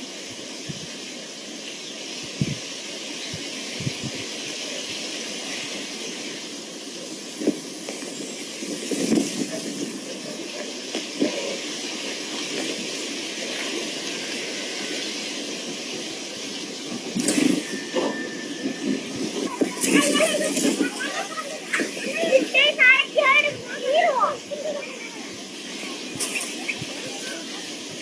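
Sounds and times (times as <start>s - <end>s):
steady hissing noise: 0.0s - 28.0s
mixed sound: 15.8s - 28.0s.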